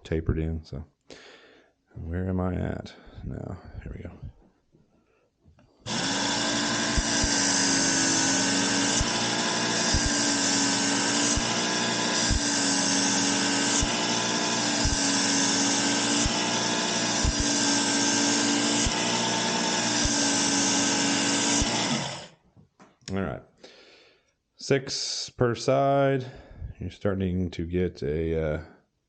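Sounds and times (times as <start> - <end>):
belt sharpener running: 5.9 - 22.4
blade grinding on belt: 5.9 - 22.4.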